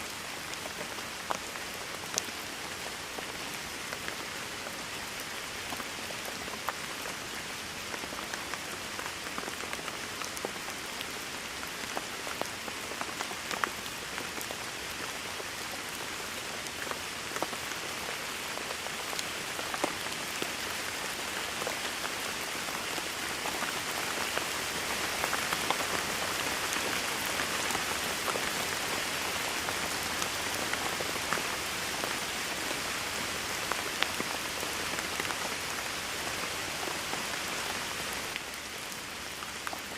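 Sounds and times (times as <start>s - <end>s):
rain on a hard surface: 0.0s - 39.9s.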